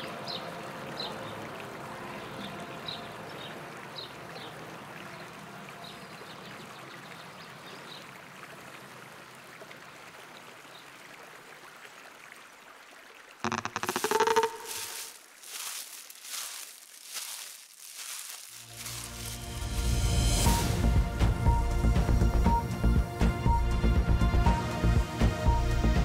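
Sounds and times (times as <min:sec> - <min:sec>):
river water flowing: 0:00.0 - 0:20.8
high bird chirps: 0:13.4 - 0:15.2.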